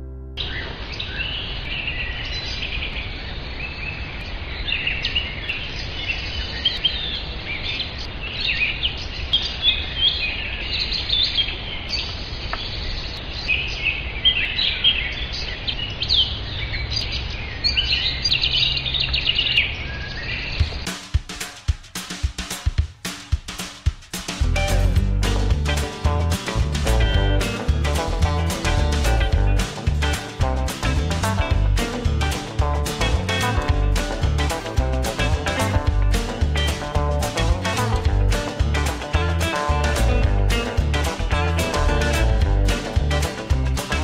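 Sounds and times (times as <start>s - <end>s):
songbirds chirping and singing: 0.4s - 20.9s
low rumble: 24.5s - 43.8s.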